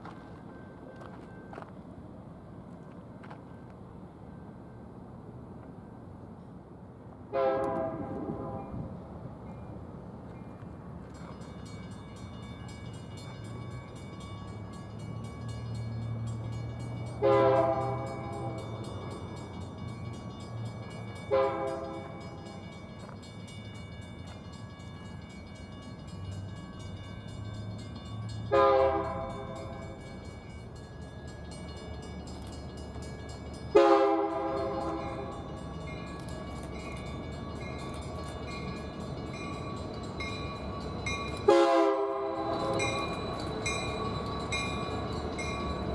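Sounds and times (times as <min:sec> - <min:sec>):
locomotive air horn blasts: 0:07.3 - 0:08.9, 0:17.2 - 0:18.7, 0:21.3 - 0:22.2, 0:28.5 - 0:30.0, 0:33.7 - 0:35.4, 0:41.4 - 0:43.0.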